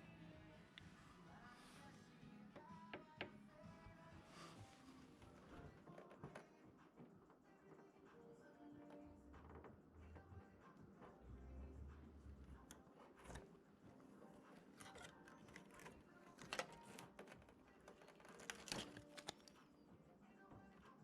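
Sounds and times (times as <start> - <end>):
small objects clicking and tapping: 14.7 - 19.6.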